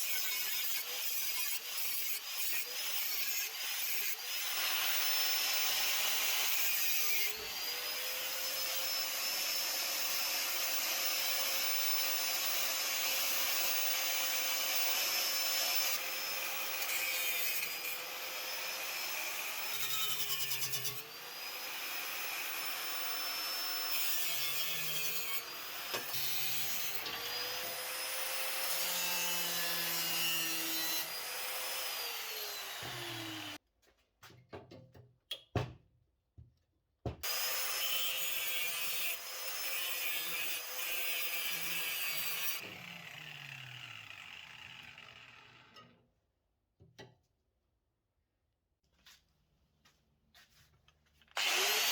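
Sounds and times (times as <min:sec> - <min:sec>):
angle grinder cutting steel: 0:00.0 - 0:33.6, 0:37.2 - 0:45.9, 0:51.4 - 0:51.9.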